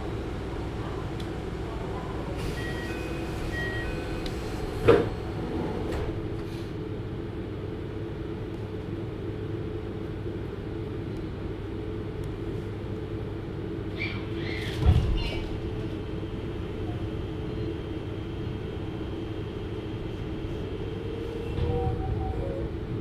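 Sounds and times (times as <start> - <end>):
electric train humming: 0.0 - 8.4, 15.7 - 23.0.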